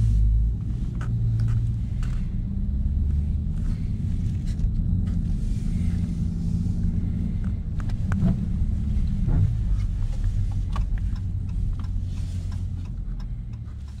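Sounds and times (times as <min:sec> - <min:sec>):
car engine drone from cabin: 0:00.0 - 0:14.0.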